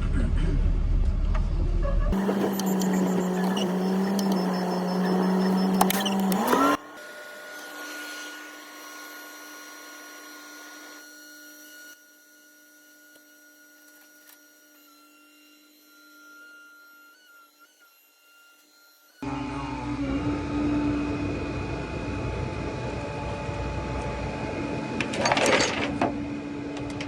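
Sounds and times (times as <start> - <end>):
motor whining: 2.1 - 25.2
faint hum with high tones: 2.2 - 10.6, 14.7 - 27.0.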